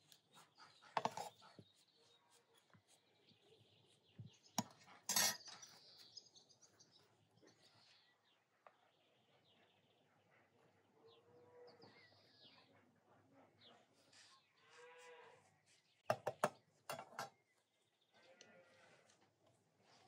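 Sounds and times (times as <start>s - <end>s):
faint birds chirping: 0.0s - 20.0s
utensils and dishes clinking: 5.0s - 5.6s.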